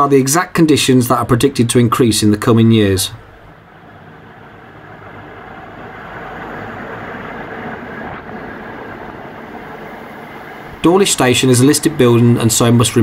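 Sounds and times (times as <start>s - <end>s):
train passing at speed: 3.3s - 13.0s.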